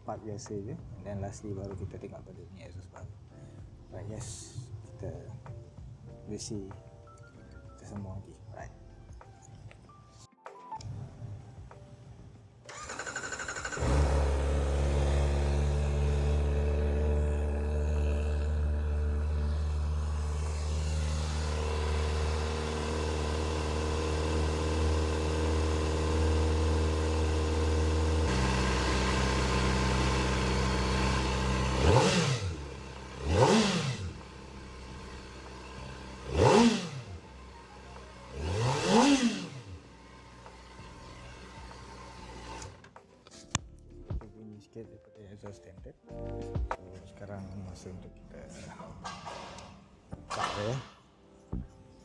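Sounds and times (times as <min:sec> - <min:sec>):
motorcycle throttle blips: 0:12.7 - 0:40.8
motorcycle engine idling: 0:12.7 - 0:42.8.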